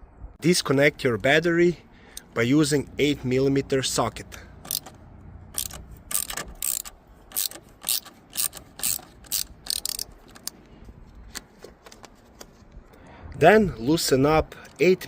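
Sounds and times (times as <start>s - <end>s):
ratchet clicking: 4.6s - 10.6s.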